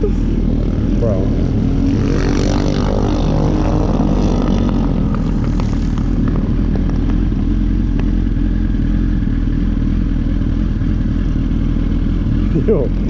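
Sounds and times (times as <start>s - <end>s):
engine idling: 5.3s - 13.0s.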